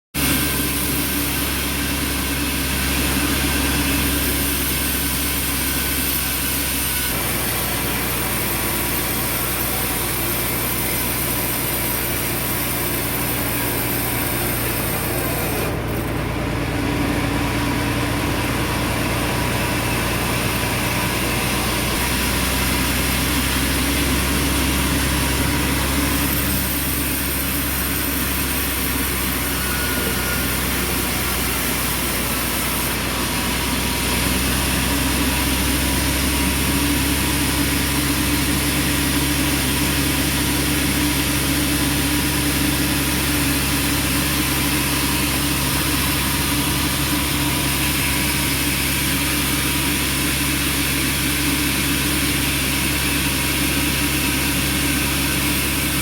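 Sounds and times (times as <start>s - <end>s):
sawmill motor drone: 0.2s - 56.0s.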